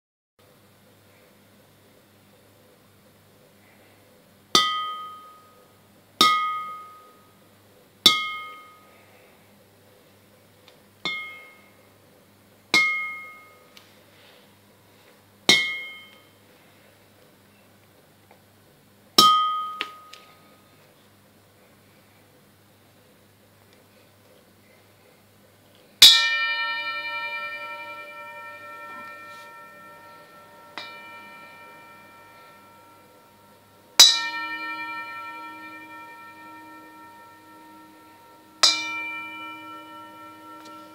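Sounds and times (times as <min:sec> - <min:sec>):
bell-like ring of tapped object: 0:11.1 - 0:11.7, 0:19.2 - 0:20.3, 0:26.0 - 0:40.9.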